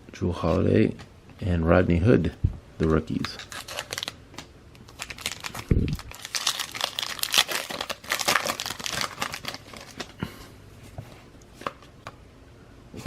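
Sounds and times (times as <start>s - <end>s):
wrapper tearing and crinkling: 3.2s - 4.2s, 4.8s - 10.2s.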